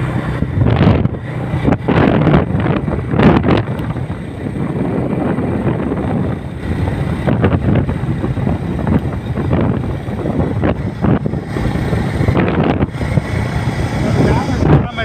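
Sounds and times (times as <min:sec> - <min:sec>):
motorcycle engine running: 0:00.0 - 0:15.0
road noise: 0:00.0 - 0:15.0
wind buffeting microphone: 0:00.0 - 0:15.0.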